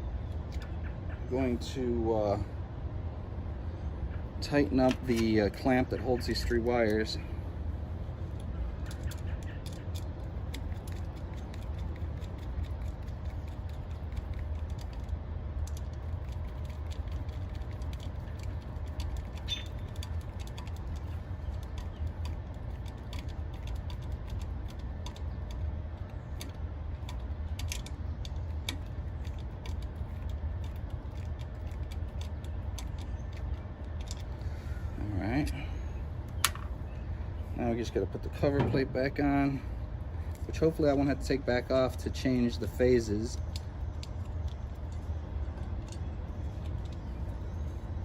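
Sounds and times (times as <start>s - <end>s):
steady low rumble: 0.0s - 48.0s
hand tools clicking and rattling: 8.3s - 34.4s, 40.3s - 47.9s.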